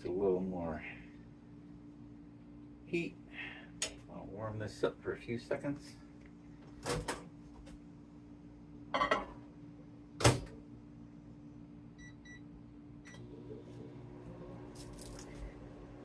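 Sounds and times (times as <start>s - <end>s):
microwave oven humming: 0.0s - 16.0s
microwave keypad beeps: 12.0s - 12.4s.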